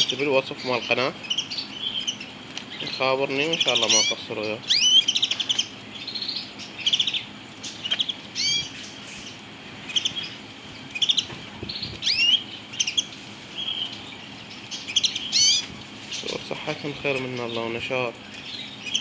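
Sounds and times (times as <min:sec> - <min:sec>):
canaries chirping: 0:00.0 - 0:19.0.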